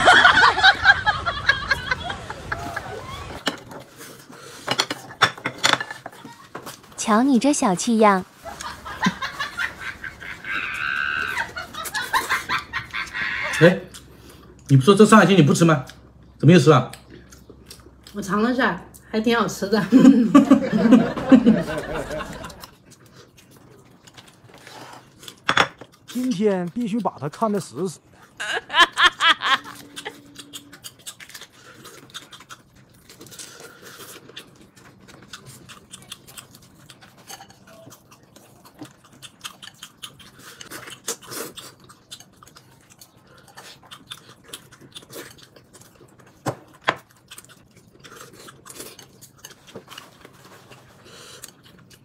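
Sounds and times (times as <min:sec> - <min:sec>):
chewing with wet mouth clicks: 0:15.8 - 0:18.3, 0:22.5 - 0:24.6, 0:25.2 - 0:27.2, 0:29.7 - 0:52.0.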